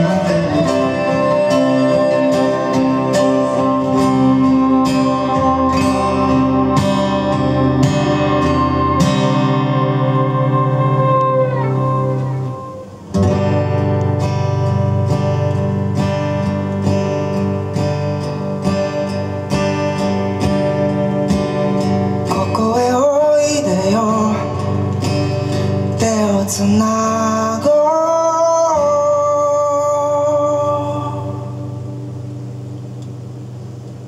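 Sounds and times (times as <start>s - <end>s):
bending melody line: 0.0s - 26.2s
steady bass: 0.0s - 27.0s
strummed guitar chords: 0.0s - 34.0s.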